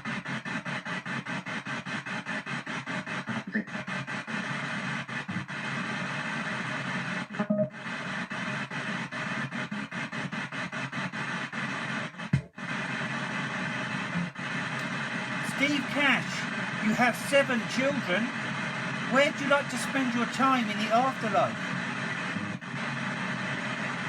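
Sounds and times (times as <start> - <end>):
radio scanning static chopping: 0.0 - 24.0
loud blips: 7.4 - 7.8.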